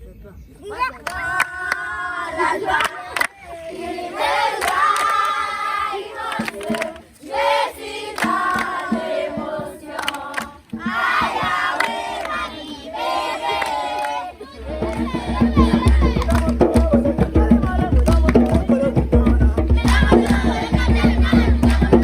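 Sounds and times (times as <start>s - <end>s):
hand claps: 1.0s - 1.9s, 2.7s - 3.4s, 4.5s - 5.6s, 6.2s - 7.2s, 8.1s - 12.8s, 14.8s - 19.0s, 19.8s - 22.0s
group singing: 1.0s - 22.0s.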